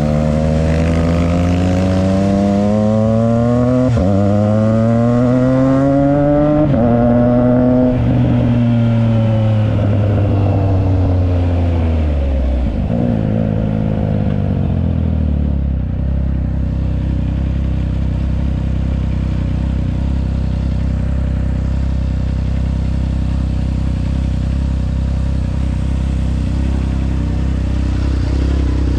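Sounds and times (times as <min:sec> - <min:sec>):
motorcycle engine revving: 0:00.0 - 0:28.9
motorcycle engine idling: 0:07.9 - 0:28.9.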